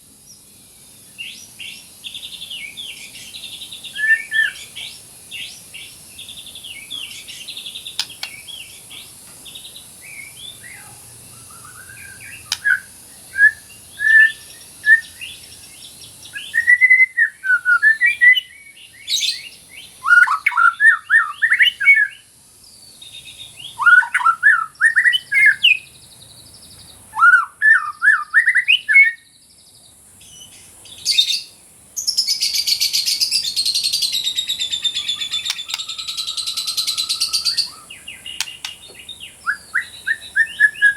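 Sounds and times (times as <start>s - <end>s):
bird singing whistled phrases: 1.2s - 5.5s, 10.1s - 15.6s, 16.3s - 22.3s, 23.6s - 25.8s, 27.1s - 29.3s, 32.1s - 40.9s.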